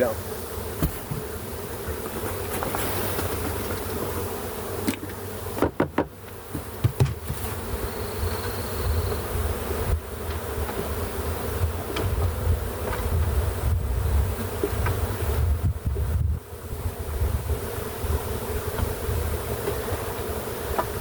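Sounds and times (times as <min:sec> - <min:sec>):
bee swarm buzzing: 0:00.0 - 0:21.0
sharp knocks on box: 0:00.8 - 0:01.3, 0:05.6 - 0:07.6.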